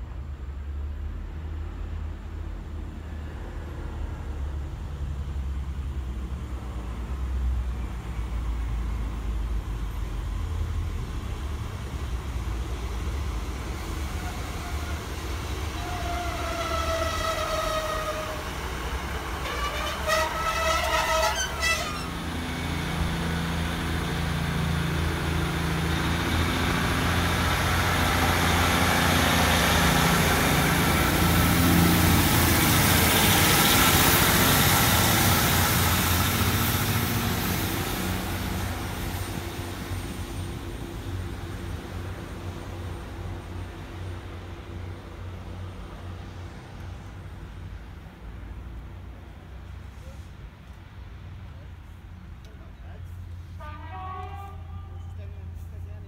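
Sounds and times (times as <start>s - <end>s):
diesel train rumbling past: 0.0s - 56.0s
train horn: 15.8s - 18.4s, 19.4s - 22.1s, 53.6s - 55.2s.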